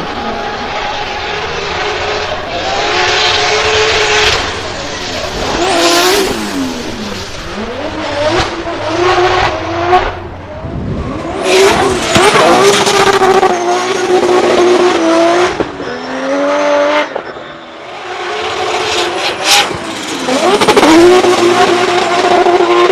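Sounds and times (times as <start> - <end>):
car engine at high revs: 0.0 - 22.9.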